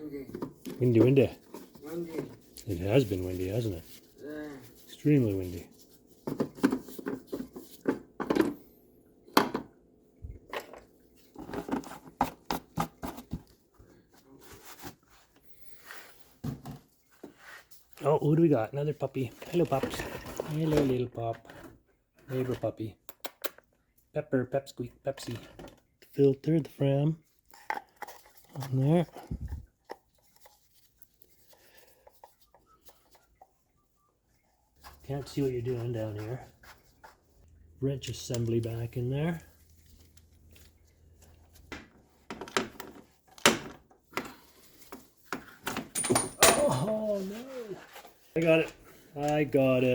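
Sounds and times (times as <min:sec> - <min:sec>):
soft rustle: 0:38.4 - 0:41.7
tools clicking and knocking: 0:45.7 - 0:46.9.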